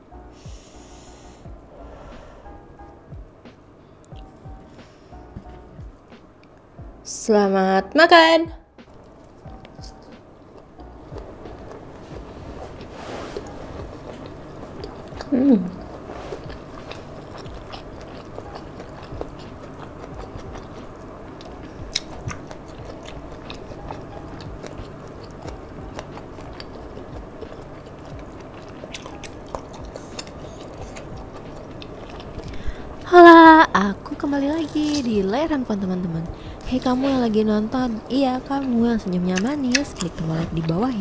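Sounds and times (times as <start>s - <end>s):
wet chewing and eating: 8.9s - 41.0s.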